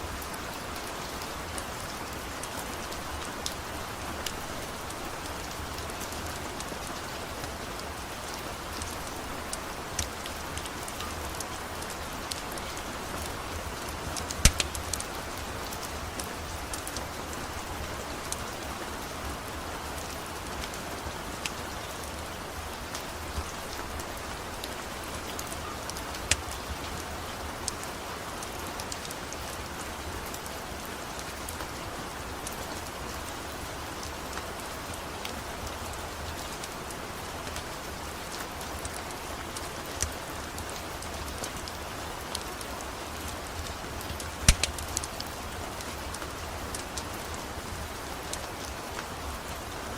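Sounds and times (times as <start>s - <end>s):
steady rain: 0.0s - 49.9s
sharp ticks: 44.5s - 44.8s.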